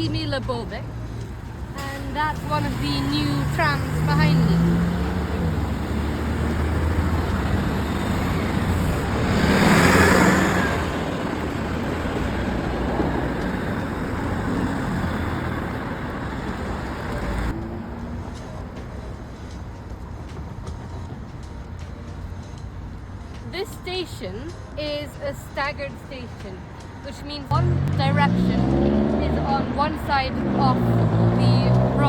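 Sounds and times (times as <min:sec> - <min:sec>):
road traffic: 0:00.0 - 0:32.0
vehicle passing close: 0:01.3 - 0:18.6, 0:27.4 - 0:32.0.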